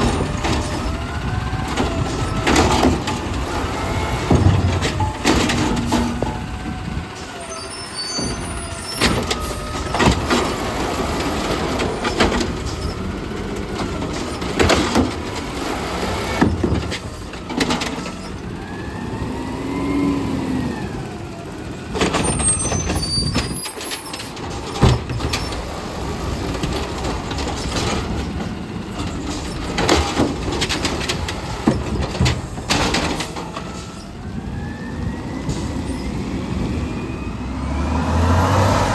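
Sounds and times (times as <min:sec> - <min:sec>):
garbage truck engine revving: 0:00.0 - 0:17.1, 0:17.8 - 0:23.0, 0:33.2 - 0:38.9
carts banging into hopper: 0:01.7 - 0:06.5.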